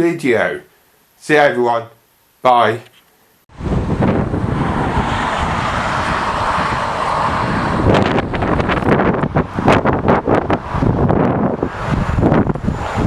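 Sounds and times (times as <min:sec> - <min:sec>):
wind buffeting microphone: 0:03.5 - 0:13.0.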